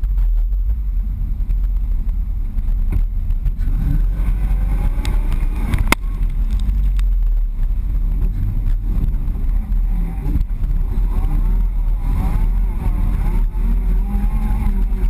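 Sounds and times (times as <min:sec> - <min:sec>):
engine revving: 0:00.0 - 0:15.0.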